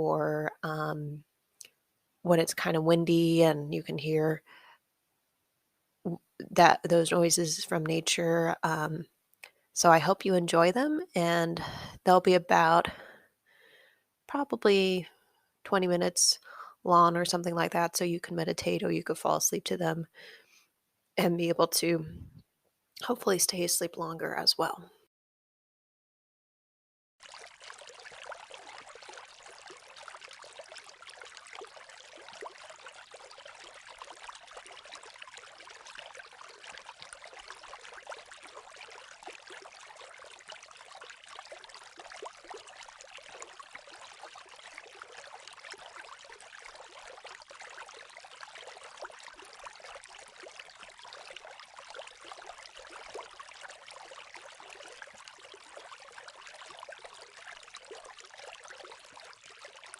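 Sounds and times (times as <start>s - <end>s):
water trickling and splashing: 2.2s - 4.7s, 27.2s - 59.9s.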